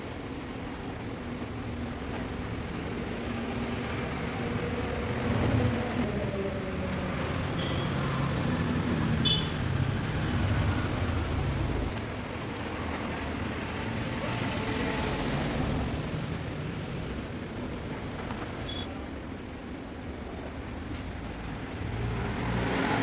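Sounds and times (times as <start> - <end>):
vehicle engine running: 7.1 - 12.4.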